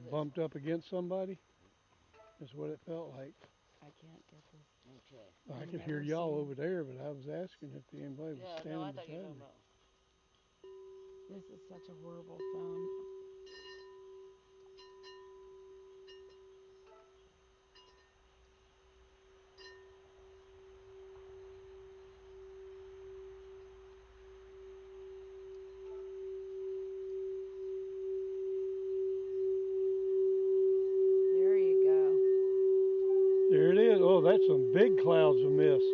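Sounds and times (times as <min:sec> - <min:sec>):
singing bowl humming tone: 0:10.5 - 0:35.9.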